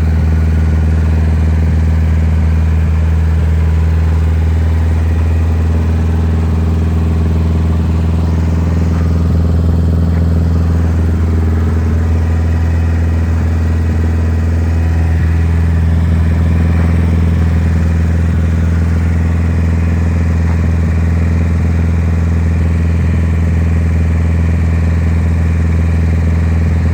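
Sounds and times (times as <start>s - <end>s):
car engine idling: 0.0s - 26.9s.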